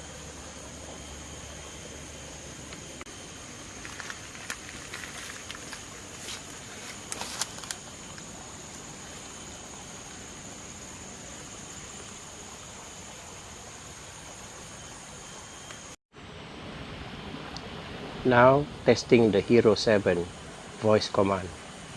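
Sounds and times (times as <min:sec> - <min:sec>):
high-pitched insect drone: 0:00.0 - 0:16.0
constant hiss: 0:00.0 - 0:21.9
small sharp clicks and crackles: 0:03.8 - 0:08.3.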